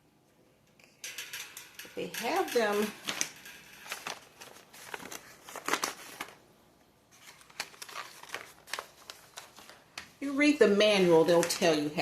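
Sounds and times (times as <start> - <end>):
plastic bag crinkling: 2.2 - 6.5, 7.1 - 10.0.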